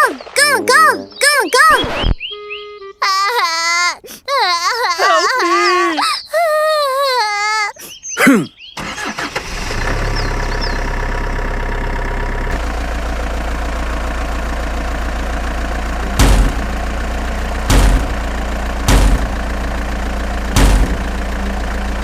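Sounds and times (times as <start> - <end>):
truck engine idling: 8.8 - 22.0
short loud blasts: 16.1 - 16.9, 17.6 - 19.6, 20.6 - 21.2.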